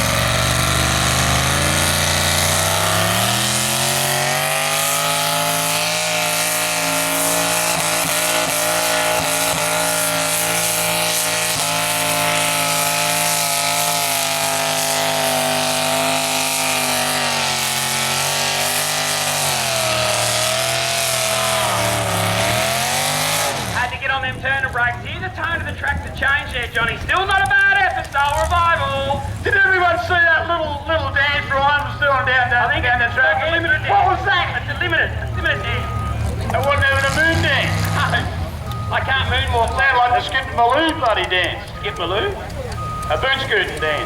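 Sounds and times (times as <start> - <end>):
tractor engine running hard: 0.0 - 44.0.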